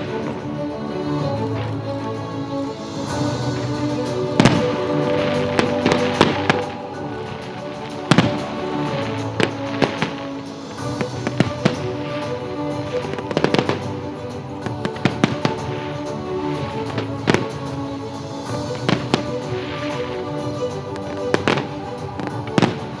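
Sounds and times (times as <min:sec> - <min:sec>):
music: 0:00.0 - 0:23.0
fireworks bangs and crackles: 0:03.9 - 0:23.0.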